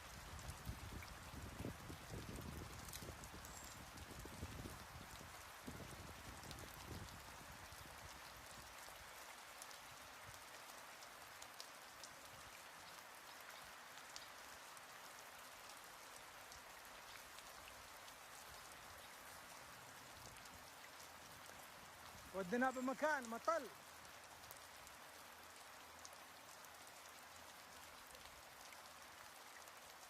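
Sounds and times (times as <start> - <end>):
light rain hiss: 0.0 - 30.0
raindrop ticks: 1.8 - 4.4, 6.4 - 14.4, 16.5 - 28.8.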